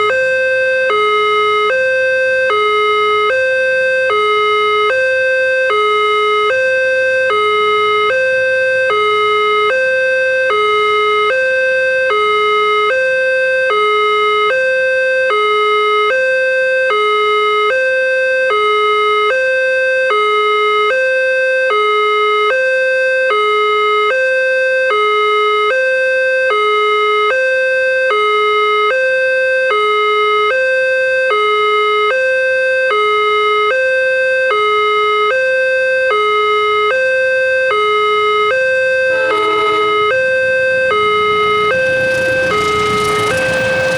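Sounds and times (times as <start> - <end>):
level crossing alarm: 0.0 - 43.9.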